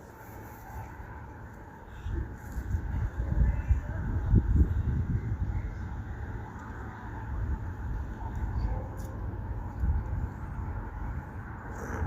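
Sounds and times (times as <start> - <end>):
low metro station rumble: 0.0 - 12.0.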